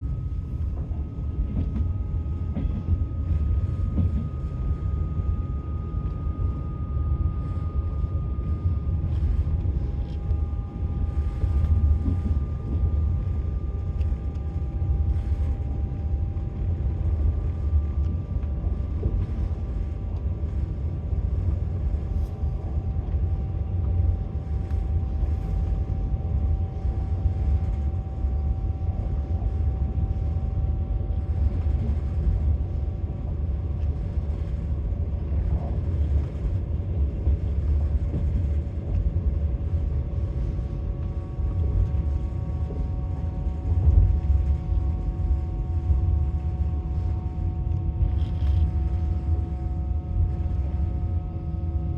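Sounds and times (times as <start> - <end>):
faint steady whine: 0.0 - 51.9
train wheels rumbling on rails: 0.4 - 4.6, 11.1 - 13.4.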